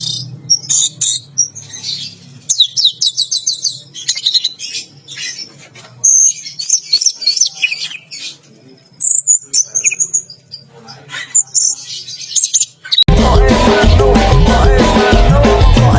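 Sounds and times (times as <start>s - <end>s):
thrush singing: 12.9s - 15.9s.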